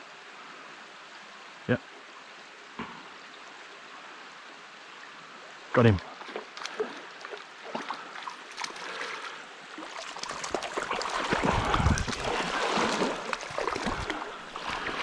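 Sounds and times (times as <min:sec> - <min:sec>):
creek water running: 0:00.0 - 0:15.0
fish splashing and knocking: 0:10.0 - 0:15.0.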